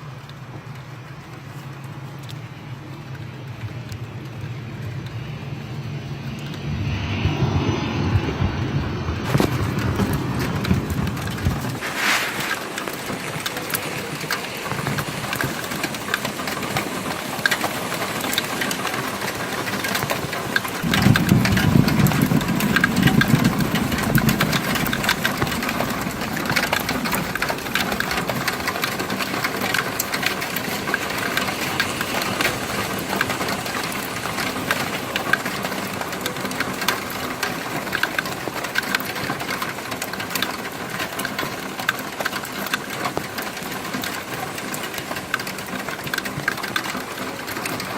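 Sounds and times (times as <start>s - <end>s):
low rumble: 3.9s - 11.8s
model train clattering on track: 9.3s - 47.9s.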